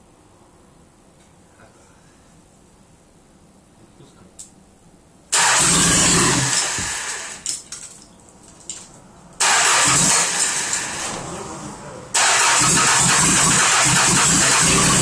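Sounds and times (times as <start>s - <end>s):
diesel engine cranking and starting: 5.3s - 7.4s, 9.4s - 15.0s.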